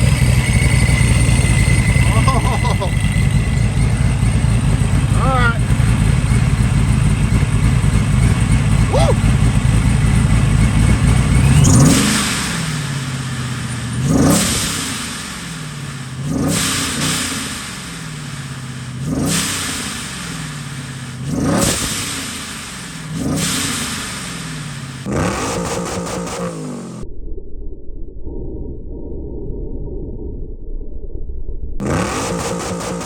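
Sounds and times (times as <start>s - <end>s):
engine revving: 0.0s - 27.0s, 31.8s - 33.0s
muffled low rumble: 27.0s - 31.8s.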